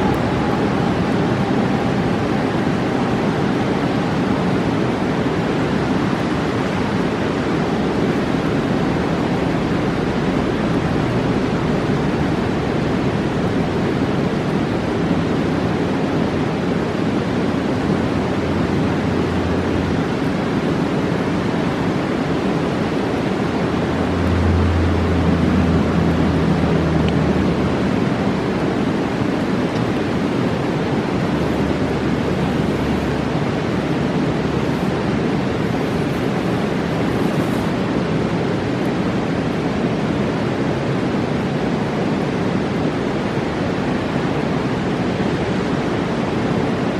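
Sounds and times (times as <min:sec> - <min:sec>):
deep water rumble: 0:00.0 - 0:46.9
river rushing: 0:00.0 - 0:46.9.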